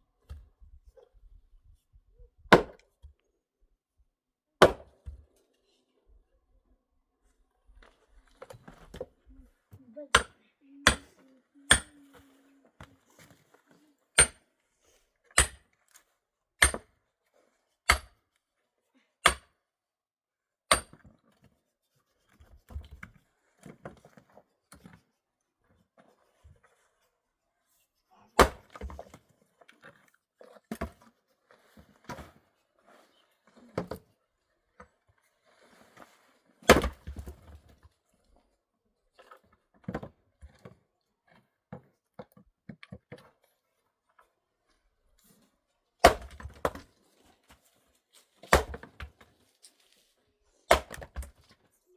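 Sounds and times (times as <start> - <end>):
axe chopping wood: 2.5 - 2.8, 4.6 - 5.2, 11.7 - 11.9, 14.2 - 14.4, 15.4 - 15.6, 16.6 - 16.9, 17.9 - 18.2, 19.2 - 19.5, 20.7 - 21.0, 28.4 - 29.0, 36.7 - 37.2, 46.0 - 46.8, 48.4 - 49.2, 50.7 - 51.3.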